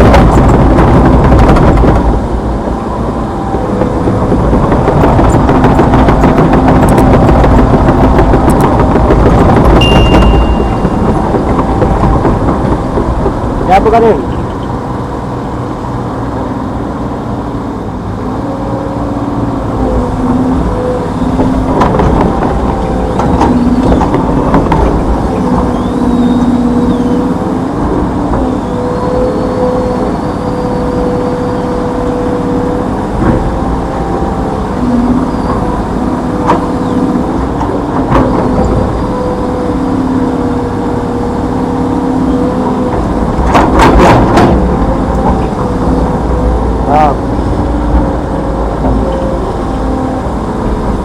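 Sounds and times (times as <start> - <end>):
hydraulic whine: 0.0 - 14.7, 19.4 - 51.0
excavator diesel engine under load: 0.0 - 51.0
sharp metal clanks: 9.8 - 11.0.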